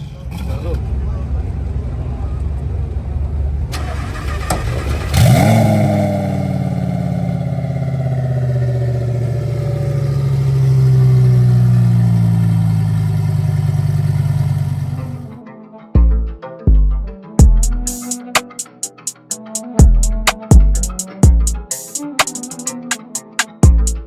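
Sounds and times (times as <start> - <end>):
drag car engine revving: 3.8 - 15.3.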